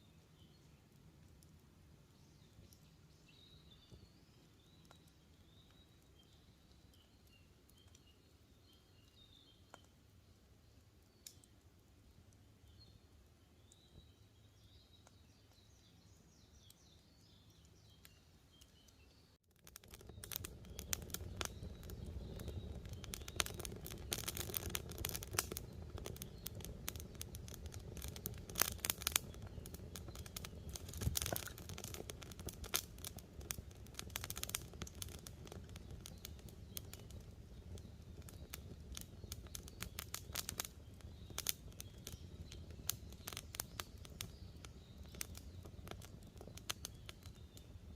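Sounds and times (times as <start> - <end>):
campfire crackling with pops: 0.4 - 47.9
faint bird chirps: 2.1 - 10.0, 12.6 - 19.4, 20.0 - 32.0, 34.3 - 47.9
low rush of burning: 19.6 - 47.9.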